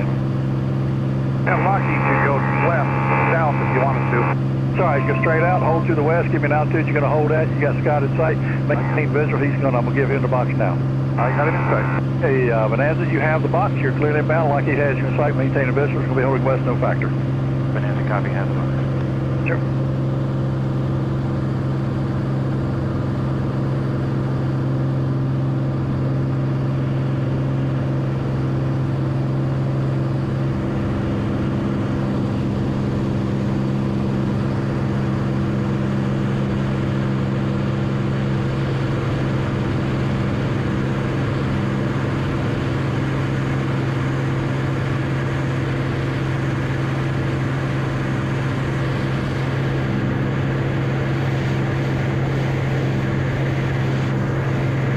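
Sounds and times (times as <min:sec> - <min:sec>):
aircraft engine and propeller drone: 0:00.0 - 0:54.9.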